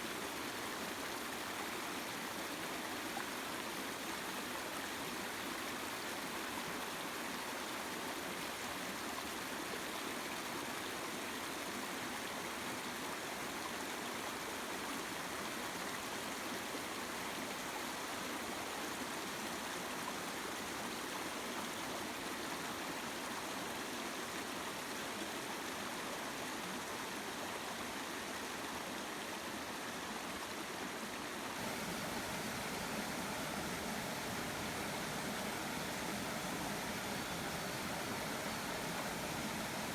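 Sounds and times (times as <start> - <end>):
river water rushing: 31.4 - 39.9.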